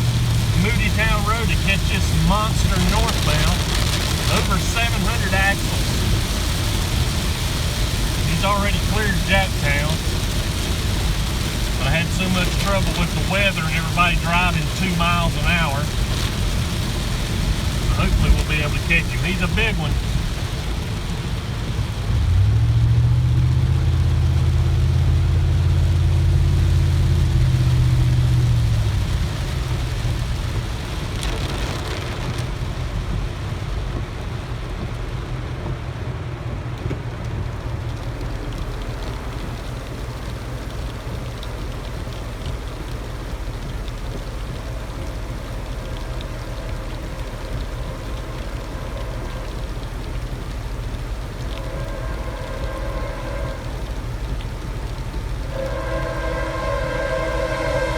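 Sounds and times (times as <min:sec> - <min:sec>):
rain and road noise: 0:00.0 - 0:57.9
low hum: 0:42.9 - 0:57.9.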